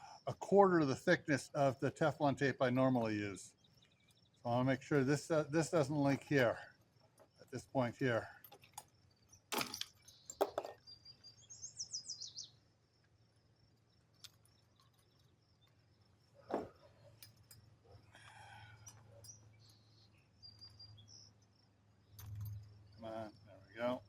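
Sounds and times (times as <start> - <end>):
songbird chirping: 0.0 - 24.0.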